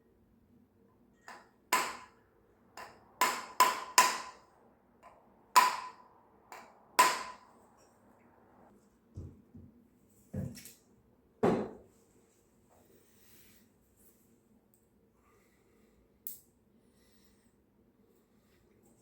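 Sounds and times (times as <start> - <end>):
sharp metallic knocks: 1.2 - 2.2, 2.8 - 7.4.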